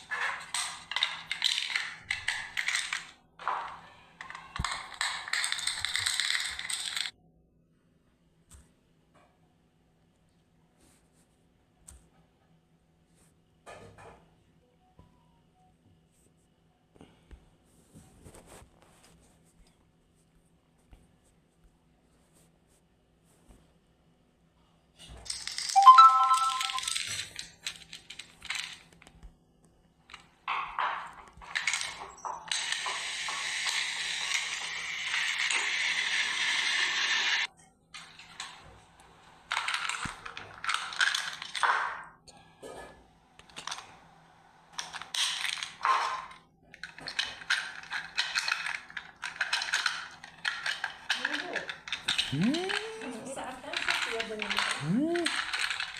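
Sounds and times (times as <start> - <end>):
plastic toy parts rattling: 0.0 - 7.1, 25.2 - 29.1, 30.1 - 37.1, 38.0 - 41.9, 43.5 - 43.9, 44.8 - 55.9
toy clicks: 4.3 - 7.1, 25.3 - 28.8, 46.8 - 55.9
whistle-like tone: 25.8 - 26.9
toy steam hiss: 32.5 - 37.5.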